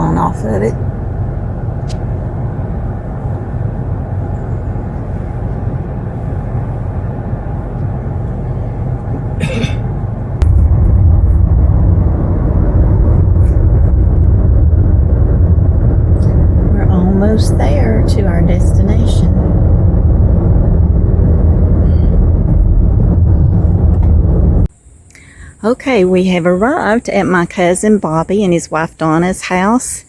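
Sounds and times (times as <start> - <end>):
car engine rumble: 0.0 - 24.8
road noise inside car: 0.0 - 24.8.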